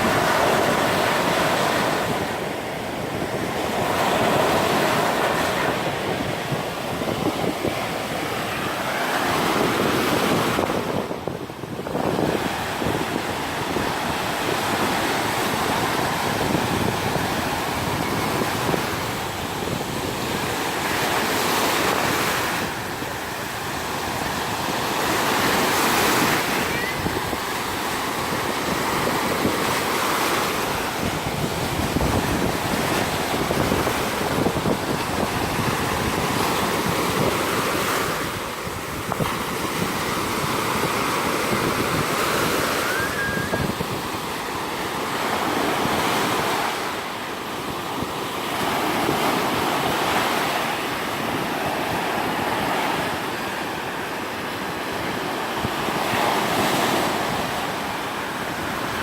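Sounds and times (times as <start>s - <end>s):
surf on sandy beach: 0.0s - 59.0s.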